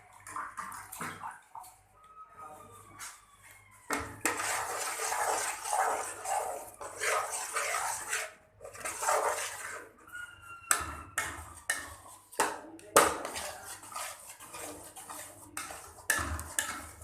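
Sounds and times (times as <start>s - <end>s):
spoon scraping a pan: 3.9s - 17.0s.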